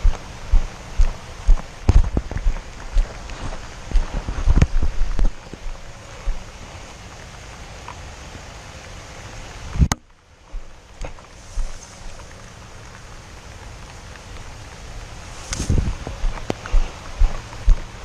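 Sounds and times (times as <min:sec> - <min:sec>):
low thumps: 0:00.0 - 0:06.4, 0:15.5 - 0:18.0
rain and wind on microphone: 0:00.0 - 0:18.0.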